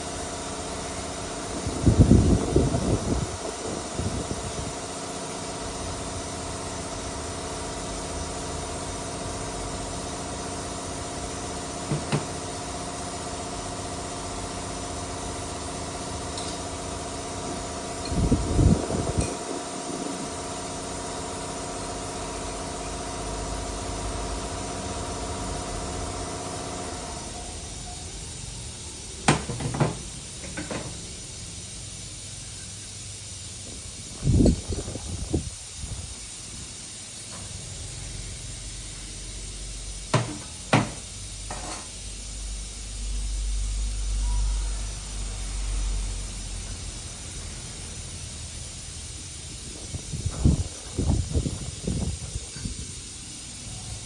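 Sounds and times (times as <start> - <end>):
steady hiss: 28.2 - 54.0
knocks and clunks: 40.1 - 41.0.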